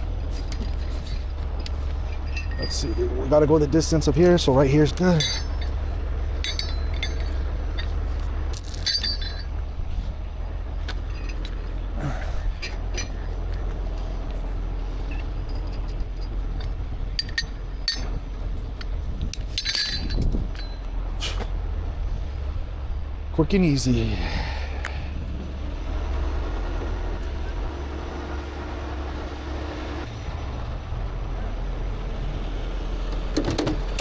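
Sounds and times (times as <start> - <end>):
steady low rumble: 0.0 - 29.4
steel chain clinking and rattling: 0.2 - 9.8, 10.8 - 20.9.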